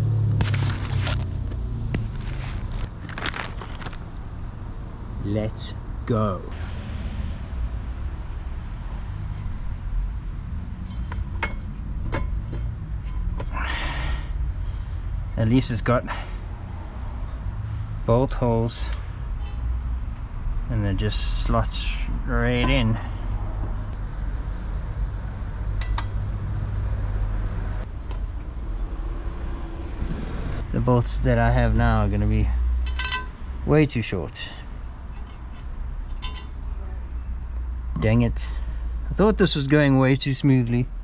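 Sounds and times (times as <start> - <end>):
metallic clinks of car parts: 10.7 - 13.6, 18.8 - 20.2, 32.8 - 33.4, 35.0 - 36.6.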